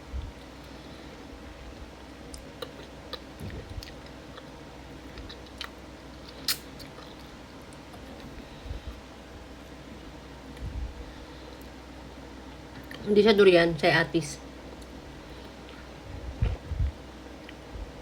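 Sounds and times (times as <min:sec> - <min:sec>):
chewing with wet mouth clicks: 0:02.3 - 0:08.4, 0:14.7 - 0:17.7.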